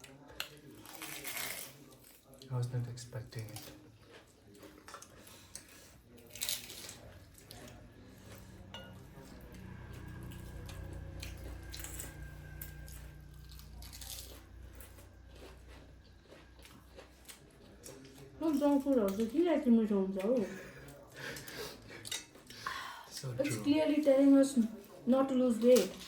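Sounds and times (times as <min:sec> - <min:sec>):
person chewing and crunching food: 0:03.3 - 0:19.3
low steady hum: 0:08.8 - 0:17.4.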